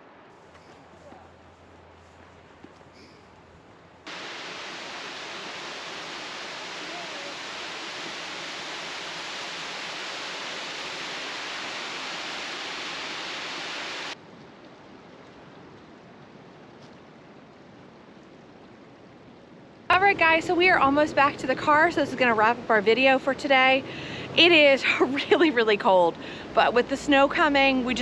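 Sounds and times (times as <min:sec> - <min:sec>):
quiet steady hiss: 0:00.0 - 0:21.8
steady rushing noise: 0:04.0 - 0:14.2.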